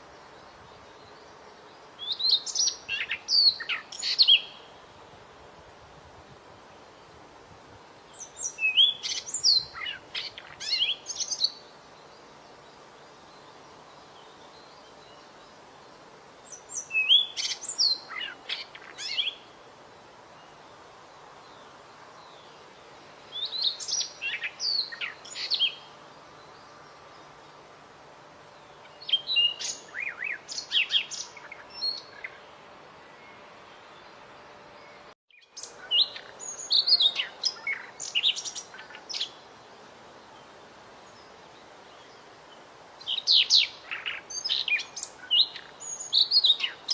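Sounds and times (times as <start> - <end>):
faint steady hiss: 0.0 - 46.9
songbird chirping and whistling: 8.2 - 11.6, 16.5 - 19.4, 28.9 - 32.4, 35.3 - 39.4.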